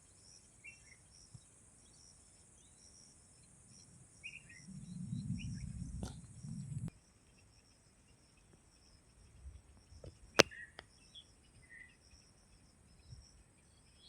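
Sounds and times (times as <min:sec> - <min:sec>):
insect chirring: 0:02.6 - 0:06.9
low rumble: 0:04.6 - 0:06.9.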